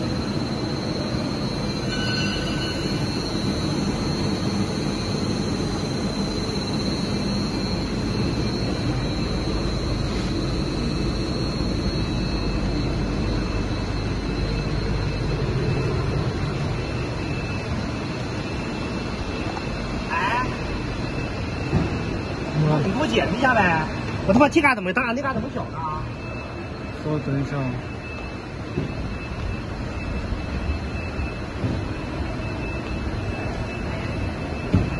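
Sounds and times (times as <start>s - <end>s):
steady machinery noise: 0.0s - 34.9s
thin high whine: 0.0s - 34.9s.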